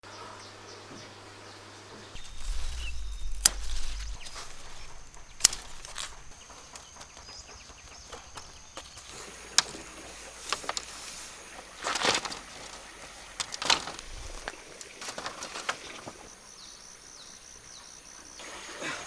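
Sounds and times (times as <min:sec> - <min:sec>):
low rumble: 0:02.2 - 0:06.9
sharp clicks: 0:02.2 - 0:07.2.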